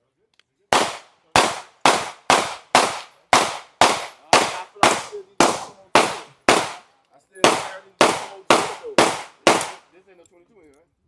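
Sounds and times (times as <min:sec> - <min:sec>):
semi-automatic gunshots: 0:00.8 - 0:06.8, 0:07.4 - 0:09.8.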